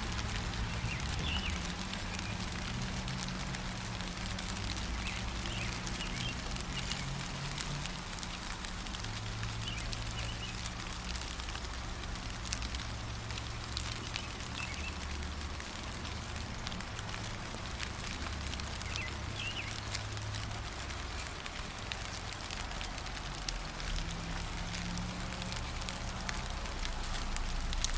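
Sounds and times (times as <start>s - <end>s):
gentle rain: 0.0s - 27.9s
raindrops ticking: 0.0s - 27.9s
bird chirping: 0.7s - 2.4s, 5.0s - 7.1s, 14.1s - 15.0s, 18.8s - 19.9s.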